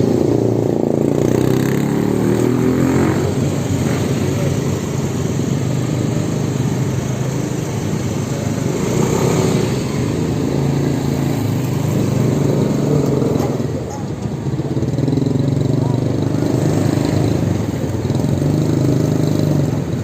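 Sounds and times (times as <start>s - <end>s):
electric motorbike rumble: 0.0s - 20.0s.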